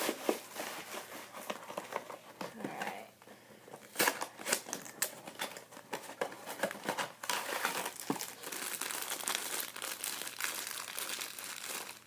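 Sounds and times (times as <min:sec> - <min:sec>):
packaging crinkling: 0:03.8 - 0:12.0.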